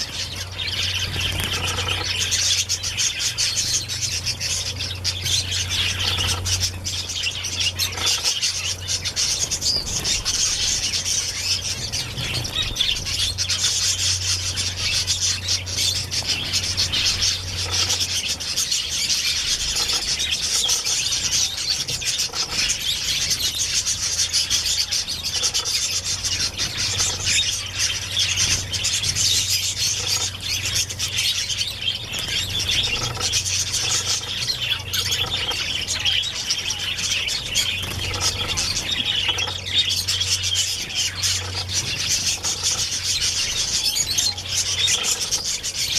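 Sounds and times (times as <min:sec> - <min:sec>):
low steady hum: 0:00.0 - 0:45.9
small birds chirping: 0:00.0 - 0:45.9.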